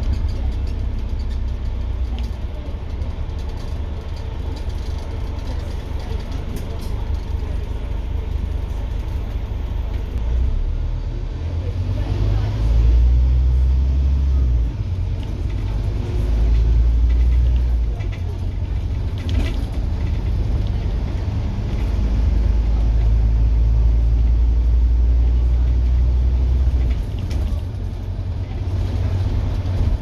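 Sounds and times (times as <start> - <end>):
bus diesel engine pulling hard: 0.0 - 30.0.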